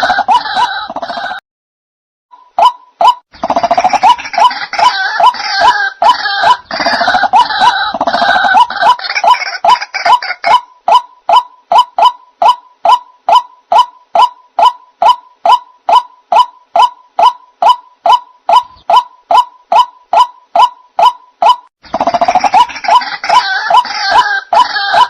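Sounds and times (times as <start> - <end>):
bird call repeated short notes: 9.1 - 25.0.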